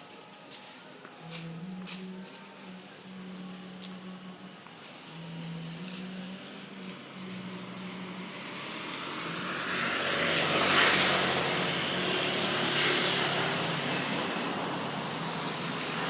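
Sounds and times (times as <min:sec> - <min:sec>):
vehicle passing by: 0:03.8 - 0:16.0.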